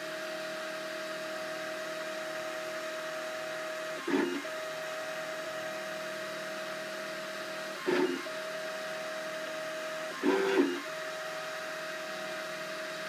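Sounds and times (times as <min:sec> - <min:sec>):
printer motor whine: 0:00.0 - 0:13.0
motor movement whirr: 0:03.9 - 0:13.0.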